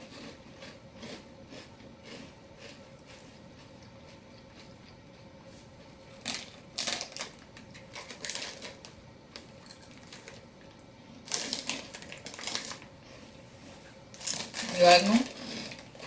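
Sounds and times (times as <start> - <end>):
crisps crunching as chewed: 0.0 - 16.0.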